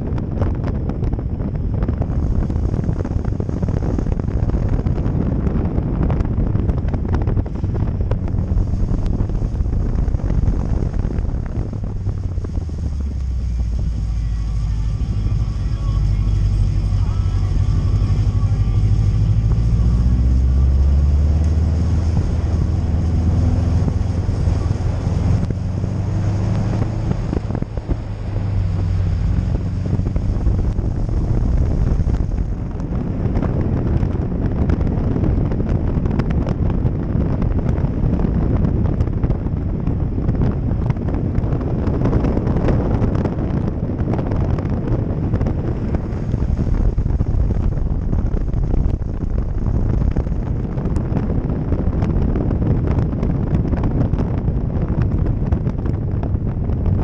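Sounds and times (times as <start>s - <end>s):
road noise: 0.0s - 57.0s
wind buffeting microphone: 0.0s - 57.0s
car engine revving under load: 0.6s - 37.2s.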